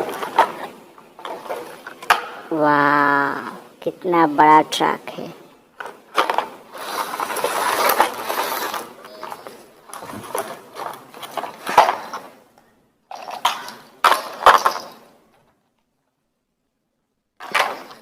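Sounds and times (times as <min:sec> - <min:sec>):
toy truck clattering and rattling: 0:00.0 - 0:02.3, 0:05.8 - 0:12.3, 0:13.1 - 0:15.5, 0:17.4 - 0:18.0.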